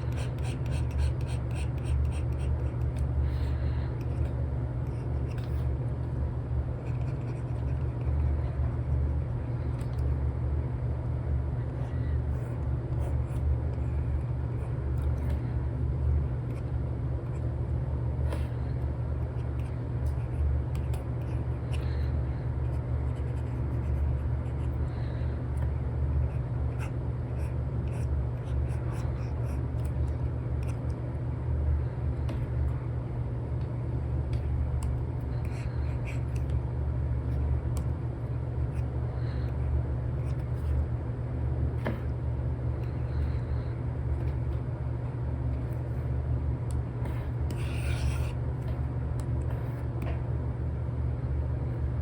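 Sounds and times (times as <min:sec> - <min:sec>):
steady low rumble: 0:00.0 - 0:52.0
stylus tapping and scratching screen: 0:47.0 - 0:50.2.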